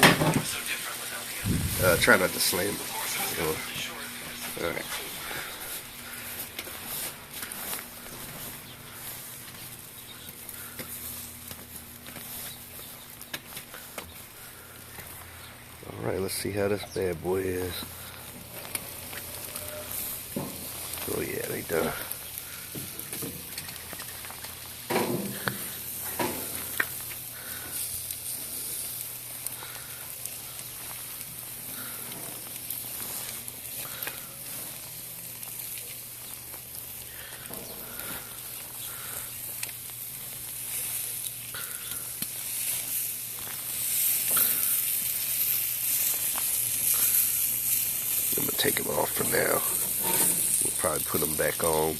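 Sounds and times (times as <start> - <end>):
food sizzling: 0.0 - 13.6, 14.3 - 51.9.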